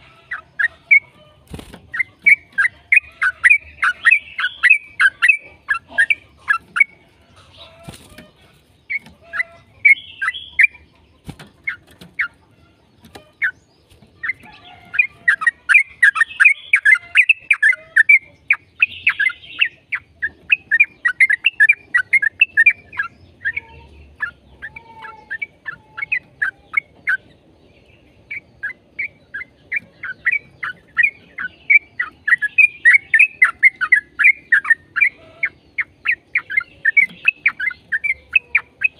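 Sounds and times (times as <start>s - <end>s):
bulbul singing chattering notes: 0.0s - 7.0s.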